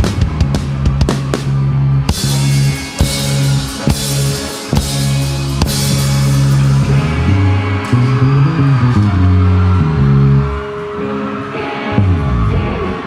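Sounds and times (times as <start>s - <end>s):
drum kit hits: 0.0s - 8.1s
bass line: 0.0s - 11.0s, 11.9s - 13.0s
rock band playing: 0.0s - 13.0s.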